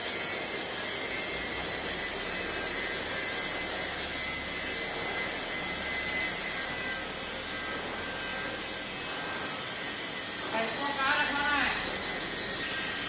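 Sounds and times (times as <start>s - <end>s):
coal pulverizer rushing noise: 0.0s - 13.0s.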